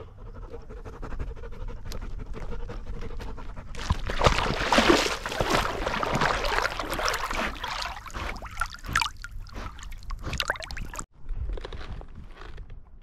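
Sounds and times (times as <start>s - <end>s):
dog splashing in water: 3.8s - 11.1s.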